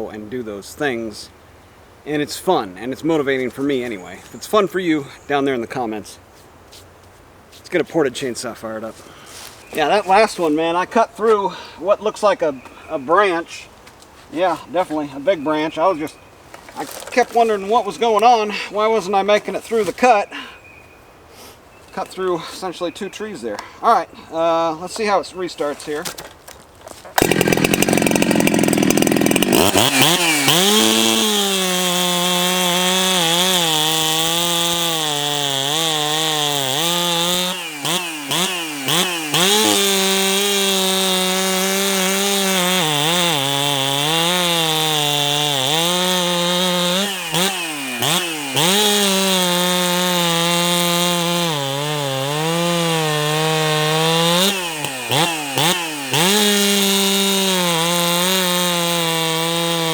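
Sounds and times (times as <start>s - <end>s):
chainsaw cutting wood: 16.6s - 18.3s, 25.7s - 59.9s.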